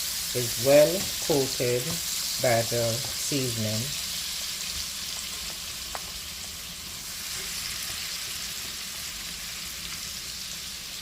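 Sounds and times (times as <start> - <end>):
shrimp sizzling in oil: 0.0 - 11.0.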